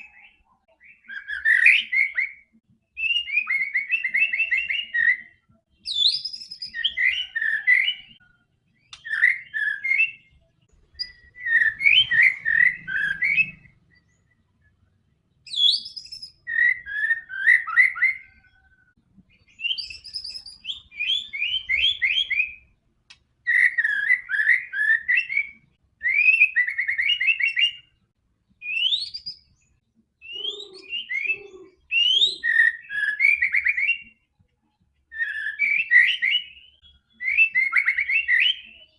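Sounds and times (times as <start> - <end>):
bird singing: 0.0 - 38.9.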